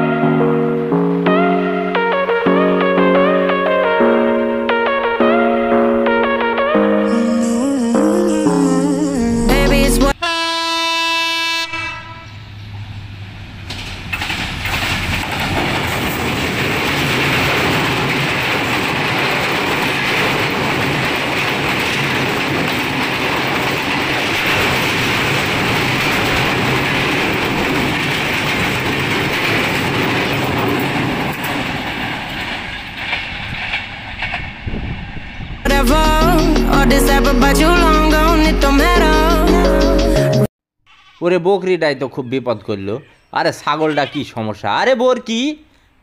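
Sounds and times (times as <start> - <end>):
train rumbling over bridge: 8.2 - 40.0
train horn blast: 10.2 - 12.6.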